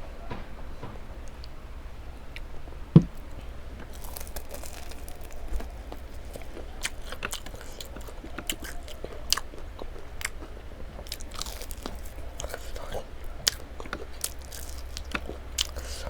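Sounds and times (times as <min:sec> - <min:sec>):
thump: 0:03.0 - 0:03.2
person eating crunchy food: 0:03.3 - 0:16.0.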